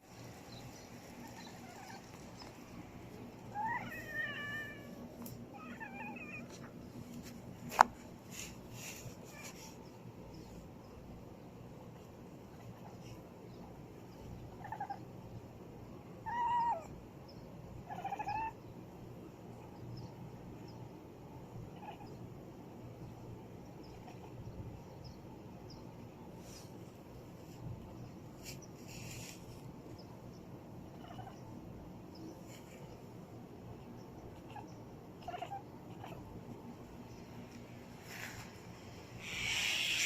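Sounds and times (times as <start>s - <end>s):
cat meowing: 3.5s - 6.7s, 17.9s - 18.6s, 35.2s - 36.2s.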